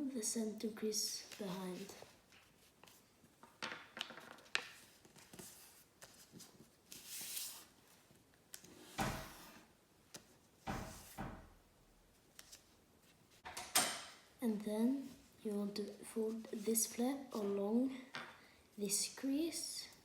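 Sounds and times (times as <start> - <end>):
paper being folded and creased: 1.2 - 3.1, 4.0 - 11.2, 12.1 - 13.4.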